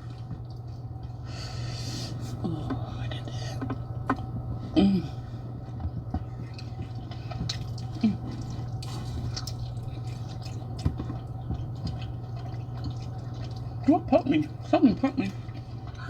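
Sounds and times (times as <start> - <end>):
steady low hum: 0.0 - 16.0
wet chewing: 5.6 - 16.0.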